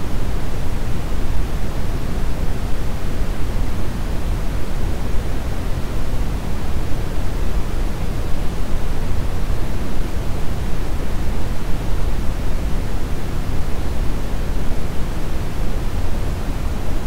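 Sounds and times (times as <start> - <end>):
brown noise hiss: 0.0 - 17.0.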